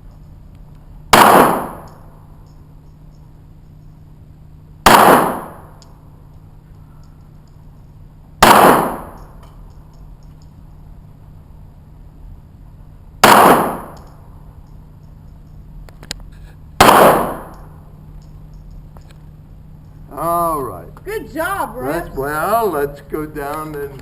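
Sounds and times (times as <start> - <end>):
pistol shots: 1.1 - 2.1, 4.8 - 5.8, 8.4 - 9.4, 13.2 - 14.2, 16.8 - 17.8.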